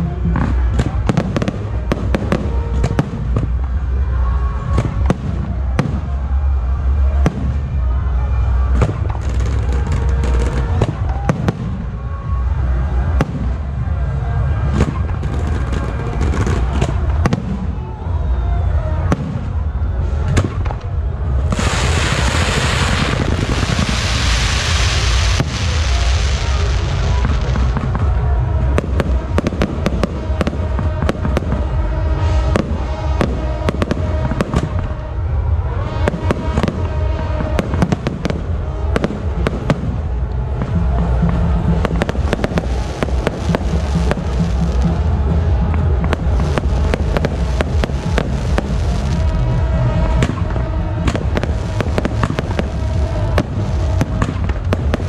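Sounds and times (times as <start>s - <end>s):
firework bangs and crackling: 0.0s - 55.0s
low rumble: 0.0s - 55.0s
spark fountains hissing: 21.6s - 27.0s.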